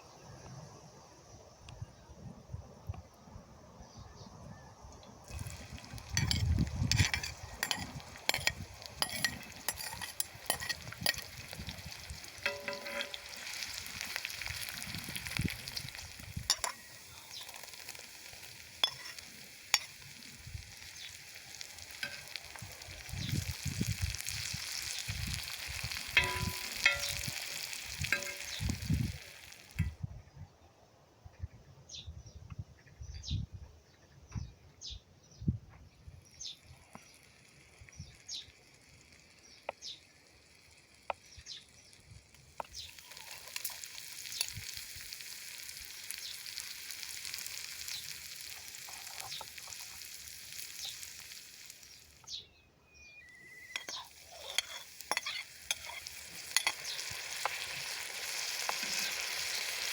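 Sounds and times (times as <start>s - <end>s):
food sizzling on a griddle: 5.2s - 29.9s, 36.1s - 59.9s
utensil scraping and tapping pan: 5.3s - 14.6s, 15.2s - 17.9s, 18.8s - 20.0s, 26.0s - 28.7s, 53.7s - 57.7s.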